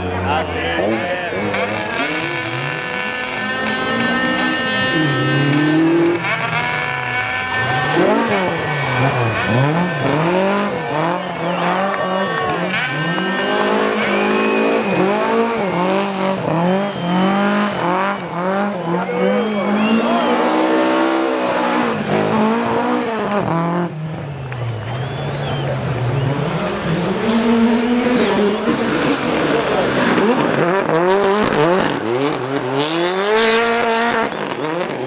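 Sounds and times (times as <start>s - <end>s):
rally car engine revving: 0.0s - 35.0s
tyres squealing: 6.2s - 23.6s, 24.2s - 31.8s.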